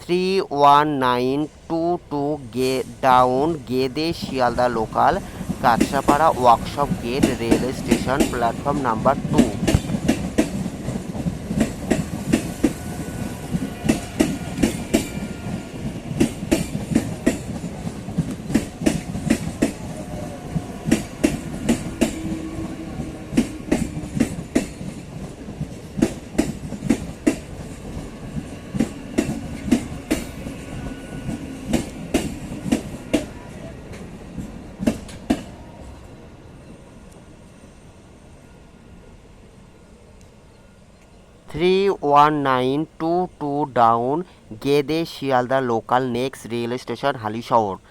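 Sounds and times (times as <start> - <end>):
low train rumble: 0.0 - 47.9
train wheels clattering over rail joints: 4.6 - 19.9.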